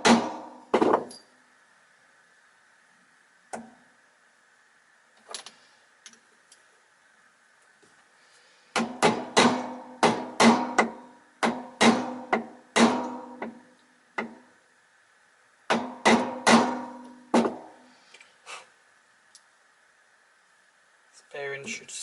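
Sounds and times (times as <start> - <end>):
hammer striking metal: 0.0 - 1.2, 8.8 - 13.6, 15.7 - 17.7.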